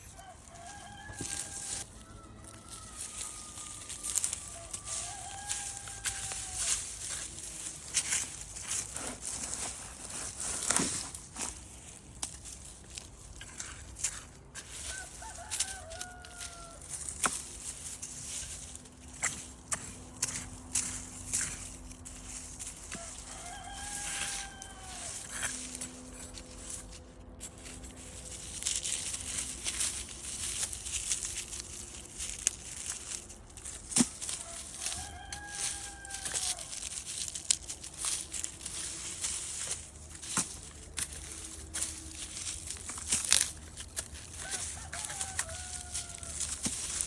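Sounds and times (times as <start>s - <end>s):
rooster crowing: 0.0s - 8.8s, 14.6s - 27.0s, 32.9s - 47.0s
rustling and crackling: 0.0s - 47.0s.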